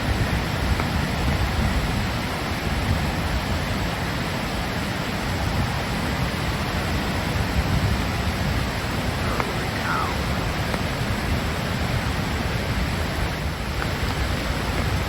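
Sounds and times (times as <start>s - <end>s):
floodwater rushing: 3.5s - 15.0s.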